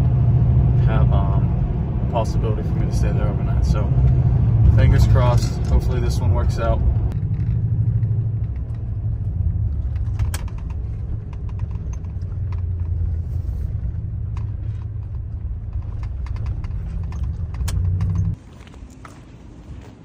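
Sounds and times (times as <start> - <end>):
truck engine and road rumble: 0.0 - 20.0
light clicks and rattles: 4.0 - 18.4.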